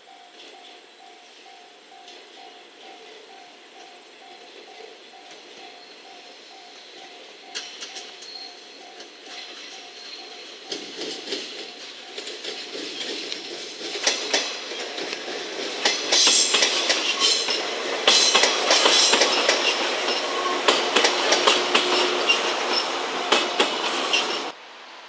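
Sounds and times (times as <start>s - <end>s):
train wheels clattering over rail joints: 7.0s - 24.6s.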